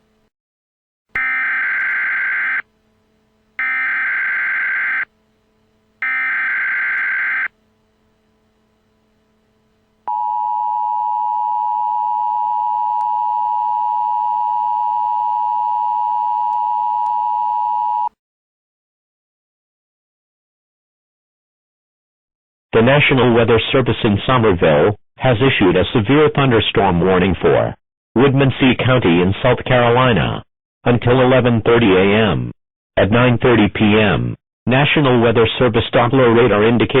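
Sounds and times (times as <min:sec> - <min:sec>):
data tone bursts: 0:01.2 - 0:02.6, 0:03.6 - 0:05.1, 0:06.0 - 0:07.5
two-tone attention signal: 0:01.2 - 0:02.6, 0:03.6 - 0:05.1, 0:06.0 - 0:07.5.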